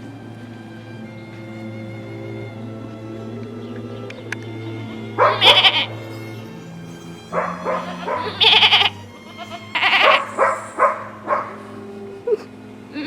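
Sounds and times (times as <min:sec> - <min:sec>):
background music: 0:00.0 - 0:13.0
goat bleating: 0:05.2 - 0:10.9.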